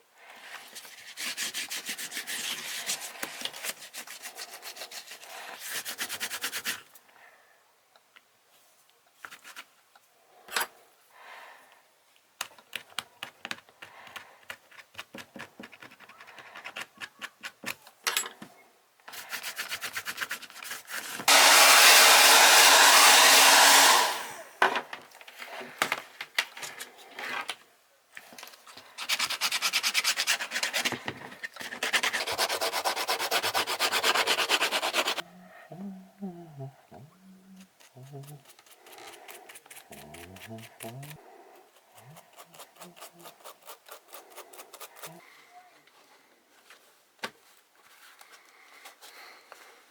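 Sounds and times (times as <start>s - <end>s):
scraping strokes on sneaker sole: 31.6s - 35.2s.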